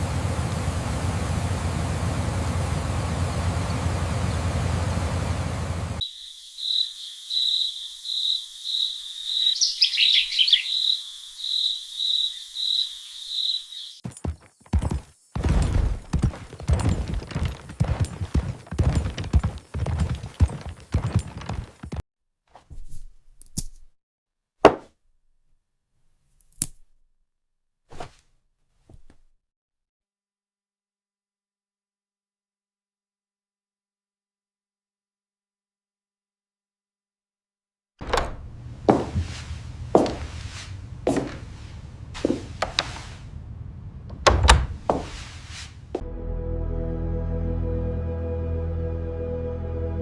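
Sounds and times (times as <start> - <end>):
insect chirping: 6.0 - 21.6
thuds and knocks: 14.0 - 22.0.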